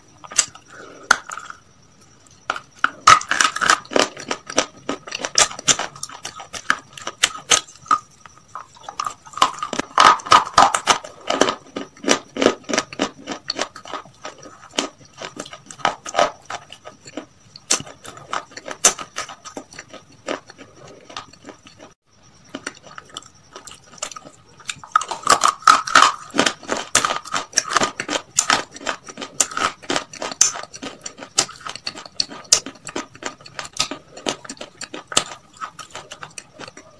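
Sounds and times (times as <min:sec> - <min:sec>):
chewing crispy fried chicken: 0:02.5 - 0:36.9.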